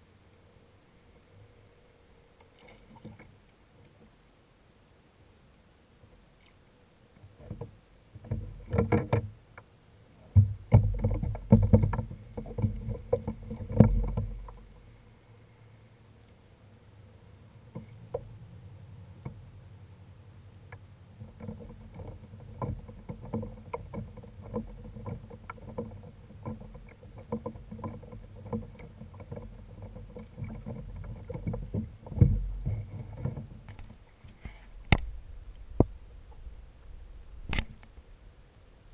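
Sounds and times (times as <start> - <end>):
steady low water rush: 0.0 - 38.9
knocks against kayak hull: 10.3 - 14.6.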